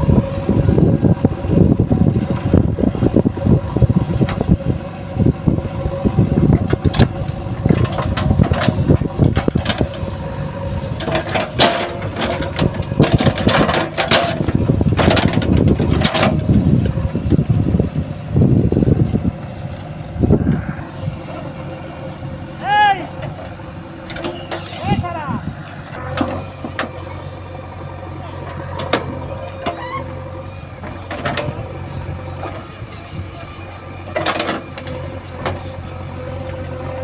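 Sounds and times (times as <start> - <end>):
steady whine: 0.0 - 36.6
diesel engine under load: 0.0 - 37.0
metal clanks and scrapes: 11.0 - 16.5, 24.1 - 25.0.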